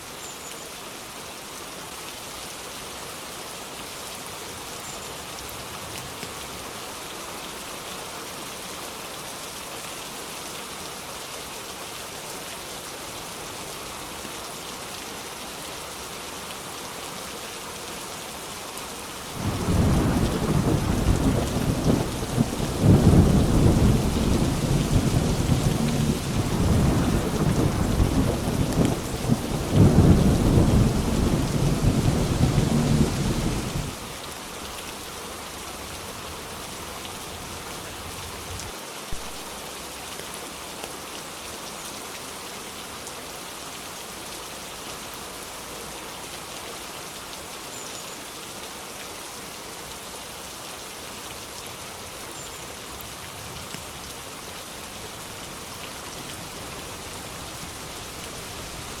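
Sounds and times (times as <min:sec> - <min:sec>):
rain hissing: 0:19.1 - 0:39.7, 0:54.2 - 0:59.0
thunder rumbling: 0:19.4 - 0:34.0.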